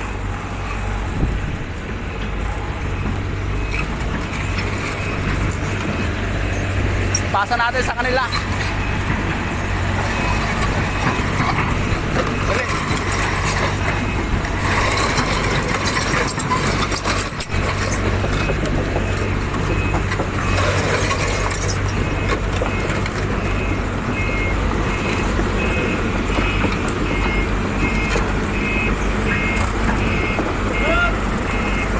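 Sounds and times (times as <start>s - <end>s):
heavy machine engine running: 0.0s - 31.9s
back-up alarm beeping: 7.0s - 31.9s.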